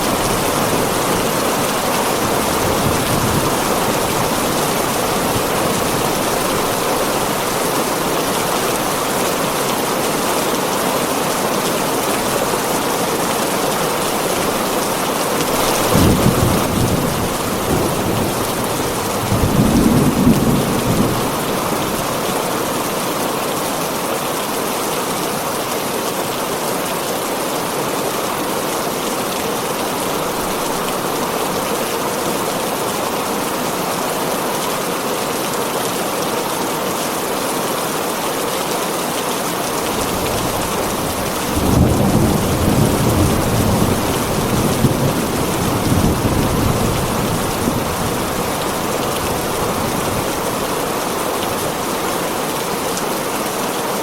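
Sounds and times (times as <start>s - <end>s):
thunder rumbling: 0.0s - 9.5s, 15.5s - 22.2s, 39.9s - 50.6s
heavy rain on a tin roof: 0.0s - 54.0s.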